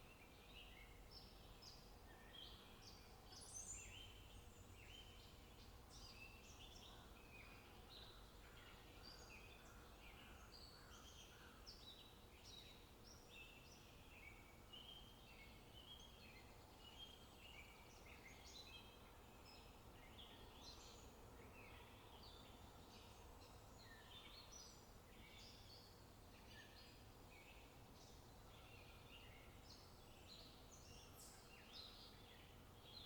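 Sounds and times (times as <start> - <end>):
faint birdsong chirping: 0.0 - 33.0.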